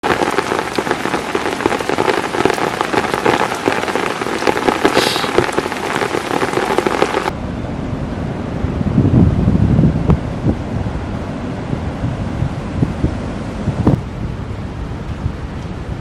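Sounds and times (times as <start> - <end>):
heavy rain falling: 0.0 - 7.3
low rushing noise: 5.0 - 16.0.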